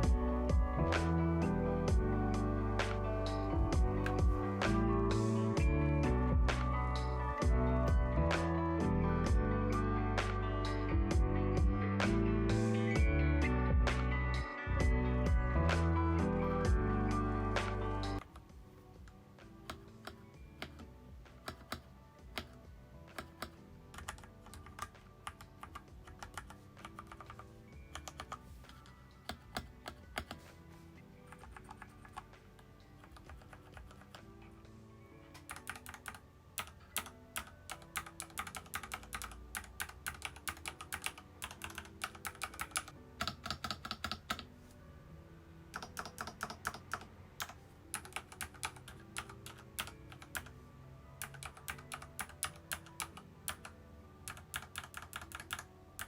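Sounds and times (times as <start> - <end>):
soft background music: 0.0 - 56.0
typing on mechanical keyboard: 21.4 - 30.4, 31.3 - 32.3, 33.0 - 34.2, 35.4 - 44.5, 45.8 - 50.5, 51.2 - 56.0.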